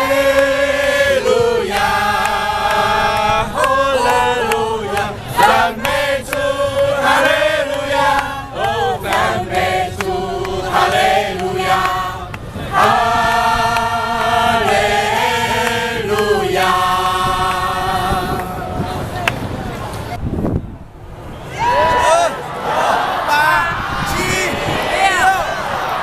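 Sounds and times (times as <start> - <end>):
group singing a worship song: 0.0 - 19.2.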